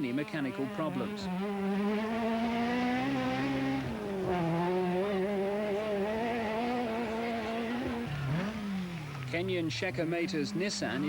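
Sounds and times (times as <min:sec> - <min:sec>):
rally car engine revving high: 0:00.0 - 0:11.0.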